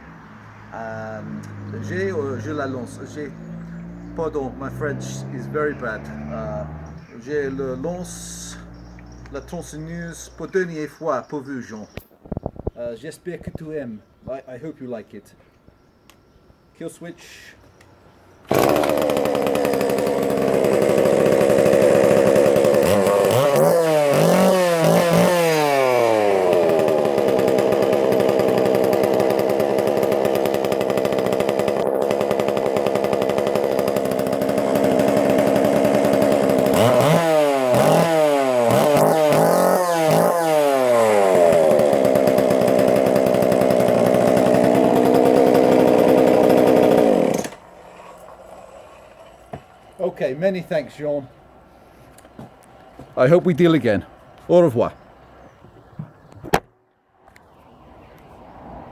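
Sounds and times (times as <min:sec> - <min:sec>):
chainsaw engine idling and revving: 0:00.7 - 0:10.3, 0:18.5 - 0:50.9.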